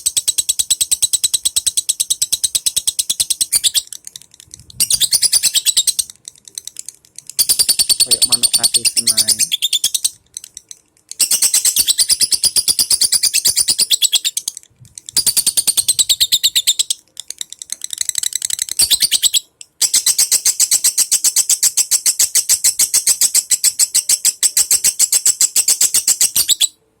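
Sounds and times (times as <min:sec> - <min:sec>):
lovebird chattering: 0:00.0 - 0:26.7.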